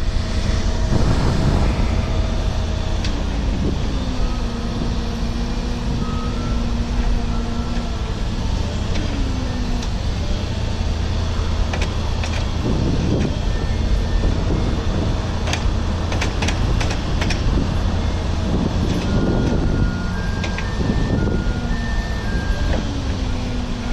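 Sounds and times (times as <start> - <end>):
motor vehicle rumbling: 0.0 - 23.9
sharp clicks or rattles: 15.4 - 17.4.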